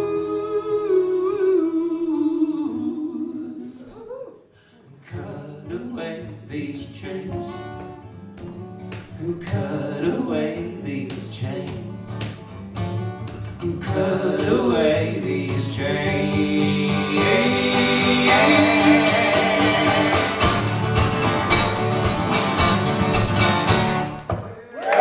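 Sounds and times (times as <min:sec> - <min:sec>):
acoustic guitar: 0:04.6 - 0:24.5
person singing: 0:13.6 - 0:21.6.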